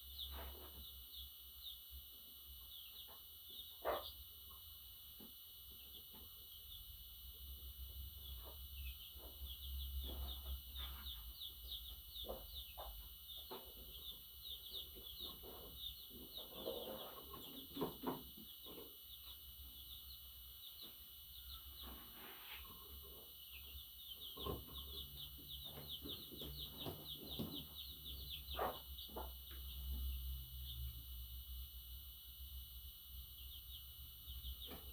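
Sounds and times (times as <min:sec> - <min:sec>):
budgerigar chirping: 0:08.2 - 0:19.9, 0:23.1 - 0:30.2.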